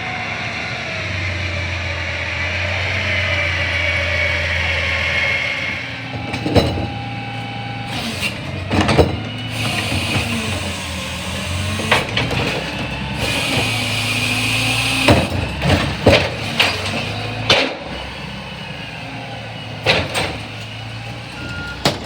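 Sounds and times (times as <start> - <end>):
garbage truck engine whine: 0.0 - 22.0
metal clanks: 6.0 - 10.9.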